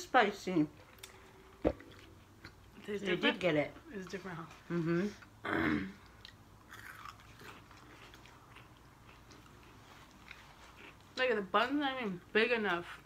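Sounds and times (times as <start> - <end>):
chewing crispy food: 6.0 - 11.2.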